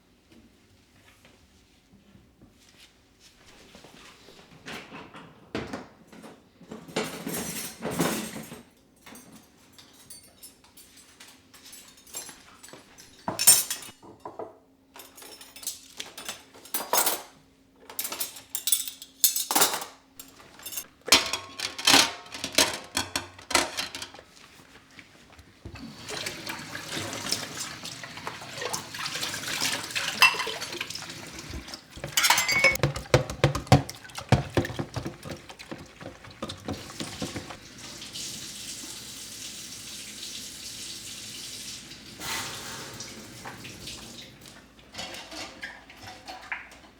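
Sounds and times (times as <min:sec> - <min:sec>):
dishes and cutlery clinking: 0:06.9 - 0:24.3, 0:30.0 - 0:37.6
tap running into sink: 0:28.7 - 0:38.7
dishes knocking under water: 0:31.4 - 0:37.6.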